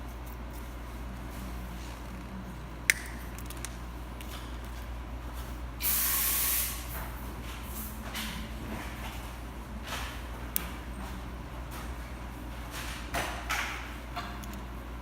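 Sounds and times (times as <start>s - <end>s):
spray hiss: 5.8s - 6.9s.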